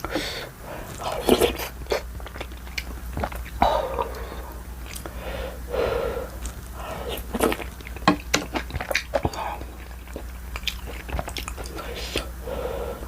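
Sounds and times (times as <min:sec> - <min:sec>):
close chewing with mouth clicks: 0:00.0 - 0:05.2, 0:06.2 - 0:12.4
slurping eating noises: 0:00.0 - 0:13.0.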